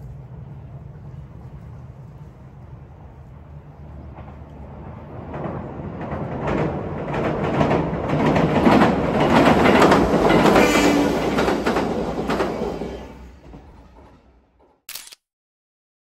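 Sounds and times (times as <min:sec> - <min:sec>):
rumble from steel bridge: 0:00.0 - 0:14.8
train wheels clacking over rail joints: 0:04.1 - 0:14.8.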